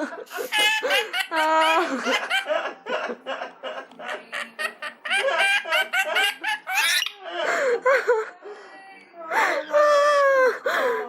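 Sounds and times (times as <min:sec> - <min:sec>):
lorikeets chattering: 0:04.3 - 0:07.2.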